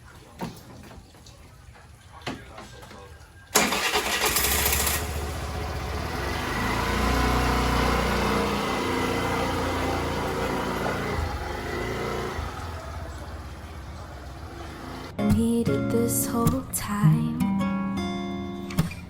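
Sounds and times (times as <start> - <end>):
vehicle engine running: 3.6 - 15.2.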